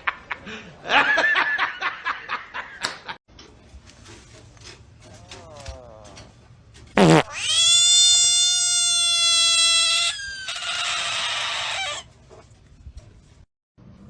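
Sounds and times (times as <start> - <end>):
animal high-pitched call: 7.2 - 12.1.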